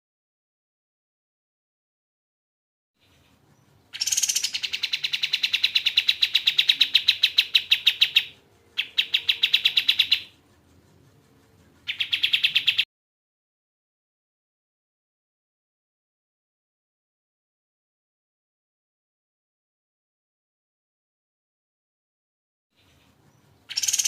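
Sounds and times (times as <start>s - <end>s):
bird chattering trill: 3.9s - 10.4s, 11.8s - 12.8s, 23.6s - 24.0s.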